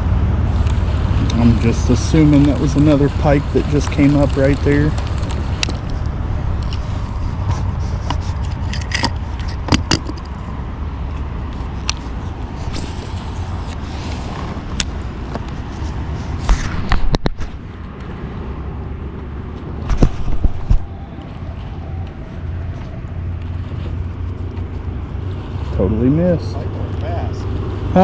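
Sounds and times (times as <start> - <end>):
wind rumble on microphone: 0.0 - 26.0
sharp clicks and knocks: 3.6 - 10.4, 16.4 - 18.1.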